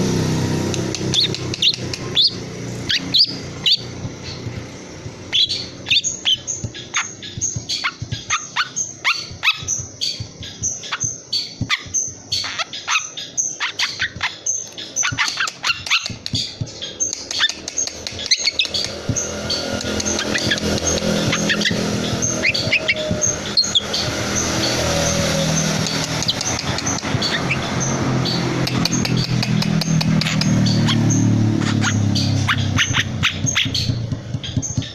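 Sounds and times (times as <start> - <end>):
shrike calling harsh notes: 18.2 - 28.6.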